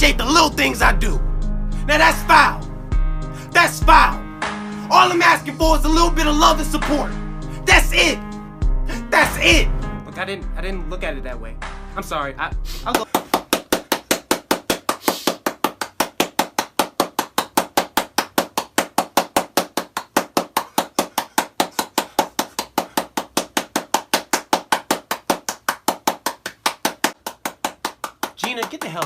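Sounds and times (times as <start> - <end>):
rapid sharp knocking: 13.0 - 29.0.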